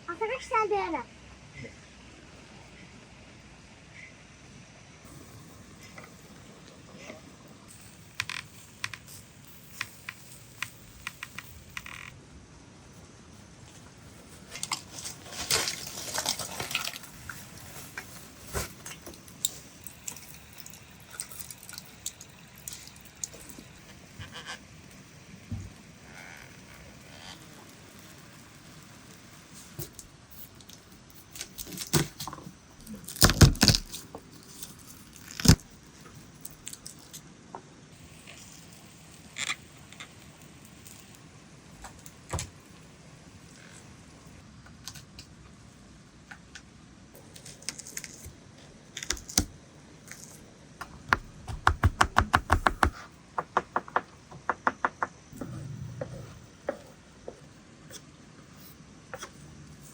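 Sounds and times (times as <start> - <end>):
rapid even taps: 51.1 - 55.2.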